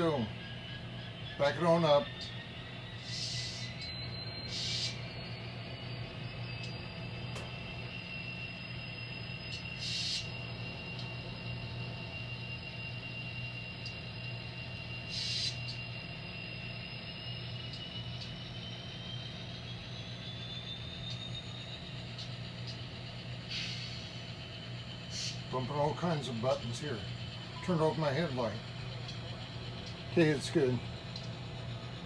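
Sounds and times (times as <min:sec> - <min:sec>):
high motor whine: 0:00.0 - 0:32.0
model locomotive hum: 0:00.0 - 0:32.0.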